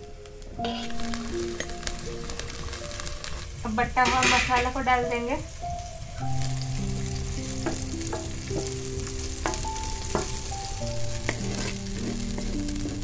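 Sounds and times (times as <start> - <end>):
paste sizzling in hot oil: 0.0 - 13.0
soft background music: 0.0 - 13.0
wooden spatula scraping a pot: 0.6 - 4.6, 7.1 - 13.0.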